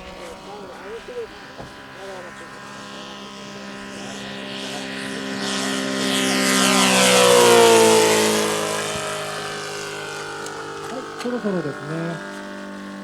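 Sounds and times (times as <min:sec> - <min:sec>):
model plane engine flying past: 0:00.0 - 0:13.0.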